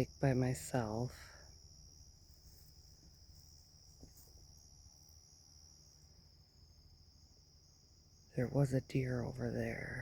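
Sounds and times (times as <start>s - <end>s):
crickets chirring: 0.0s - 10.0s.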